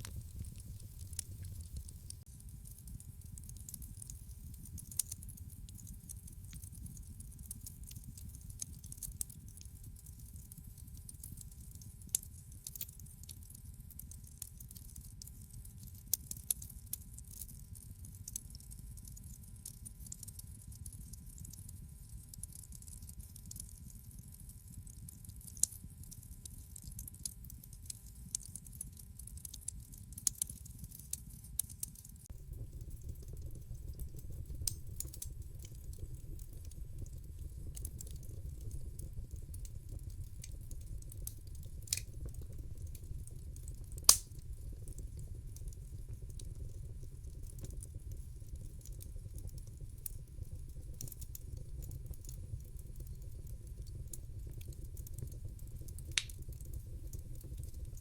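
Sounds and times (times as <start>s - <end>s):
low rumble of flames: 0.0s - 14.8s, 31.6s - 58.0s
wood fire crackling and popping: 0.0s - 21.6s, 22.3s - 58.0s.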